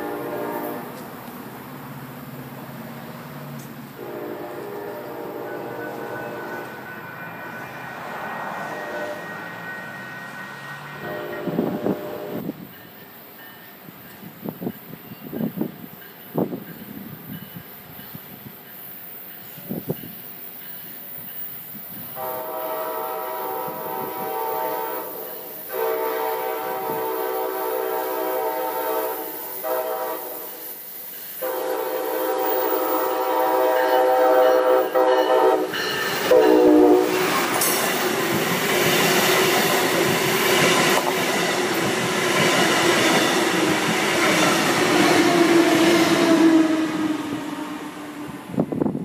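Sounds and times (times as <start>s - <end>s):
train horn blasts: 0.0s - 1.1s, 4.0s - 12.6s, 22.1s - 30.7s, 31.4s - 38.0s, 43.1s - 48.6s
train rushing past: 0.0s - 49.0s.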